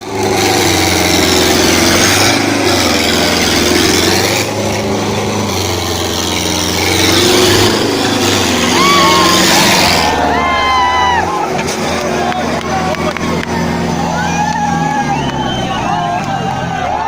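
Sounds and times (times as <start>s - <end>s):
tractor diesel engine running: 0.0s - 17.0s
person shouting: 8.7s - 11.5s.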